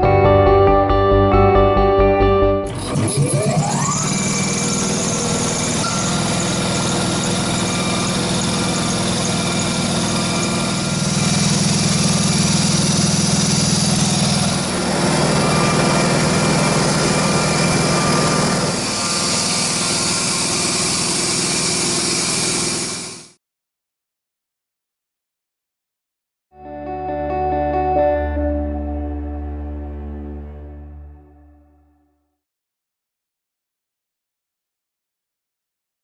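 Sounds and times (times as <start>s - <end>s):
air compressor humming: 2.7s - 23.4s.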